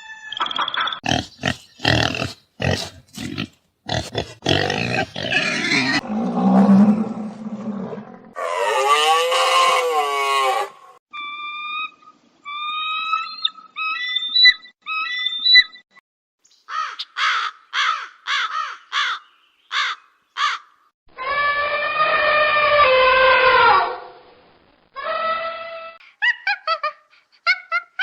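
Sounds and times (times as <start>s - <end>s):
long harsh animal call: 21.2s - 24.0s.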